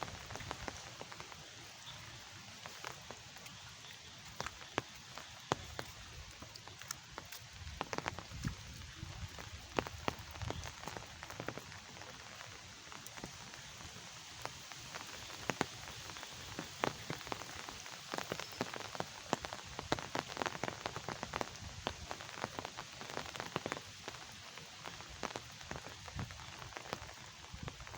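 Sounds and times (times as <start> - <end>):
raindrops tapping on hard surface: 0.0 - 27.9
steady rain hiss: 0.0 - 27.9.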